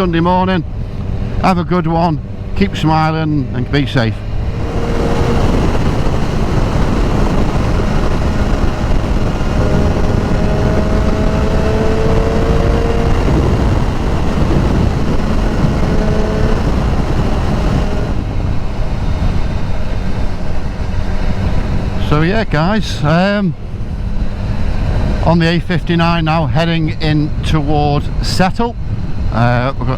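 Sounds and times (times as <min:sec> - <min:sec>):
wind and road rush: 0:00.0 - 0:29.9
motorcycle engine running: 0:04.2 - 0:22.1.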